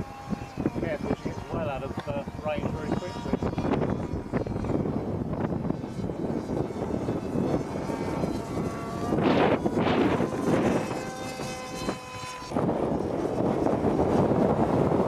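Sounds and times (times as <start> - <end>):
model aircraft motor whine: 0.0 - 15.0
wind gusts on microphone: 0.0 - 15.0.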